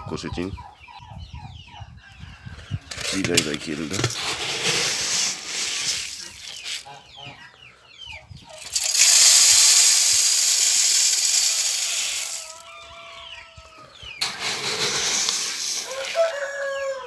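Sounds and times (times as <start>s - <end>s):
poultry chirping: 0.0s - 2.9s, 6.2s - 8.7s, 12.6s - 15.1s
loud steady hiss: 8.6s - 12.6s, 14.2s - 16.2s.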